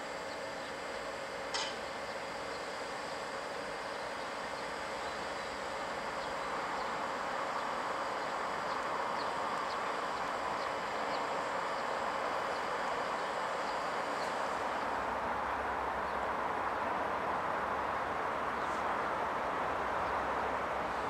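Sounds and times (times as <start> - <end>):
electric trains hissing: 0.0 - 21.0
bird chirping: 4.0 - 14.4.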